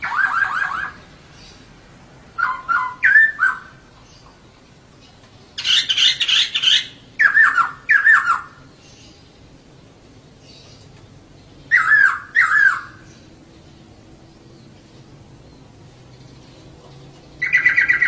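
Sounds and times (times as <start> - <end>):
bird downslurred calls: 0.0 - 1.1, 2.4 - 4.4, 5.6 - 8.7, 11.7 - 13.1, 17.4 - 18.0
bird harsh chatter: 2.4 - 4.5, 5.1 - 9.3, 11.7 - 13.3, 17.4 - 18.0.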